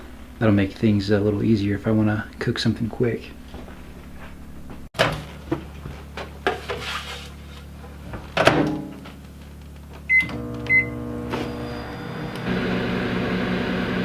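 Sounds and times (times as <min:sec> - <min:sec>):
microwave oven humming: 0:00.0 - 0:04.9, 0:09.8 - 0:14.0
keypad beeps: 0:10.1 - 0:10.9.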